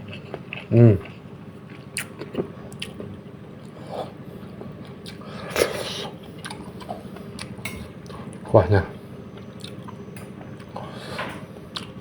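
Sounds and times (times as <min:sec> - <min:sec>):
wet chewing and smacking: 0:00.0 - 0:03.8, 0:04.7 - 0:08.4, 0:09.4 - 0:10.9, 0:11.7 - 0:12.0.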